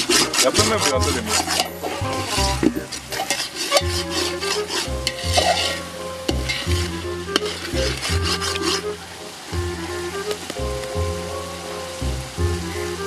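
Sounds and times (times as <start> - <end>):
metal ladle scraping pot: 0.0 - 9.0
background music with bass line: 0.0 - 13.0
masala sizzling: 0.0 - 13.0.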